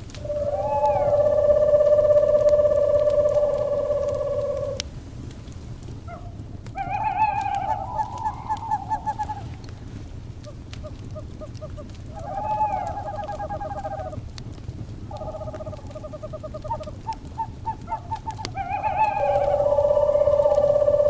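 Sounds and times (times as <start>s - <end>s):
long steady tone: 0.0s - 4.8s, 19.2s - 21.0s
owls trilling calls: 0.0s - 4.8s, 6.1s - 9.8s, 10.4s - 14.2s, 15.1s - 21.0s
wood fire crackling: 0.0s - 21.0s.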